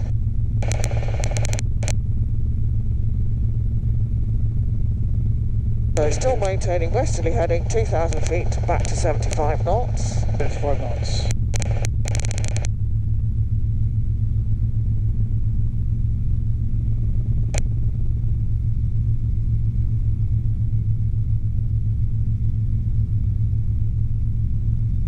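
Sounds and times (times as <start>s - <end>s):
helicopter engine and rotor drone: 0.0s - 25.0s.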